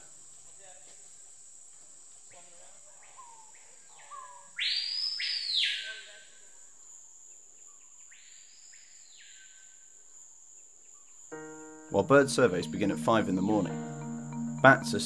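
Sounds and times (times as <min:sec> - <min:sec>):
bird piercing call: 0:03.2 - 0:06.3.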